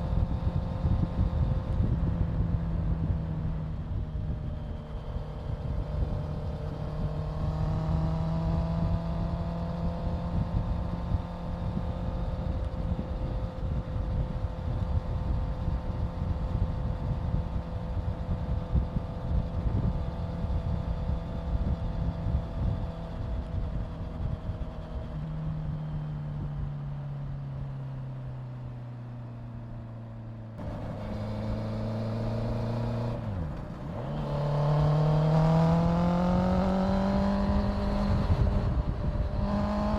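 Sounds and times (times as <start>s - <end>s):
motorcycle engine cruising: 0.0s - 39.9s
wind rushing over microphone: 30.6s - 39.9s.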